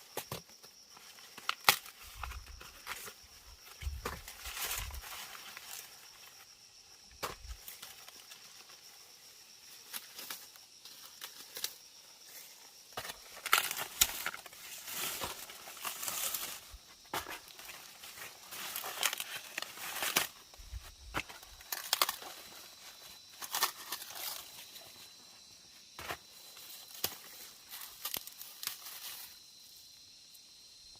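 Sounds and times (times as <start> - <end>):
high insect buzz: 0.0 - 30.9
dry corn leaves rustling: 0.9 - 6.5, 9.7 - 25.2, 26.1 - 29.5.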